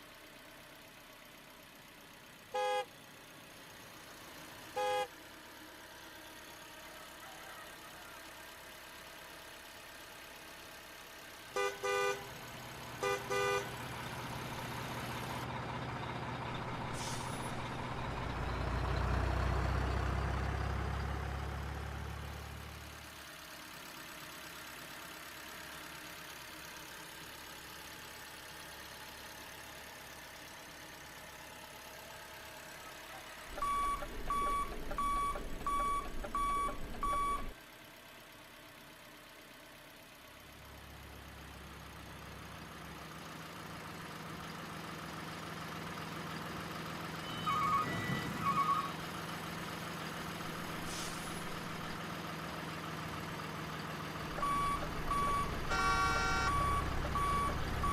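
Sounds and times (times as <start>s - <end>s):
engine rumble: 0.0s - 57.9s
reversing alarm beeping: 33.5s - 37.5s, 47.2s - 49.0s, 54.4s - 57.9s.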